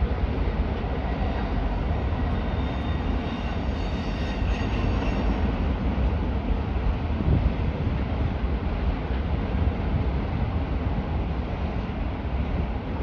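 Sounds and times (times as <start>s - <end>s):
train wheels rumbling on rail: 0.0s - 13.0s
high-pitched wheel squeal: 2.4s - 5.4s.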